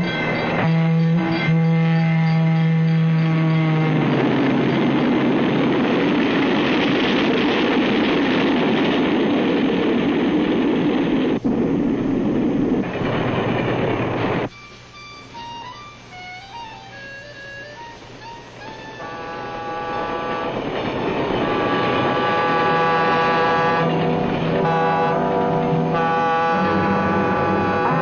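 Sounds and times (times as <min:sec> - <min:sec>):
train horn: 0:00.0 - 0:06.9, 0:16.1 - 0:28.0
train passing with rushing roar: 0:00.0 - 0:28.0.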